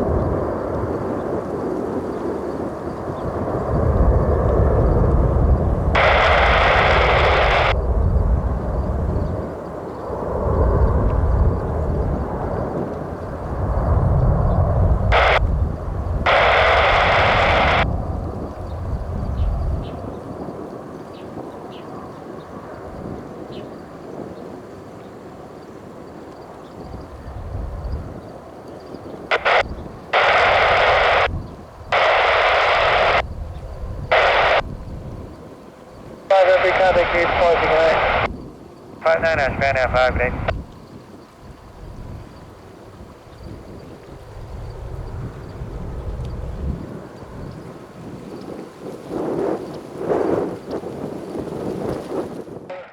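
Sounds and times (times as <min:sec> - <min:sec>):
jet airliner engines rumbling: 0:00.0 - 0:52.9
wind buffeting microphone: 0:00.0 - 0:52.9
radio static hiss bursts: 0:05.9 - 0:07.8, 0:15.0 - 0:17.9, 0:29.3 - 0:33.3, 0:34.1 - 0:34.8, 0:36.3 - 0:38.3, 0:39.0 - 0:40.6, 0:52.7 - 0:52.9.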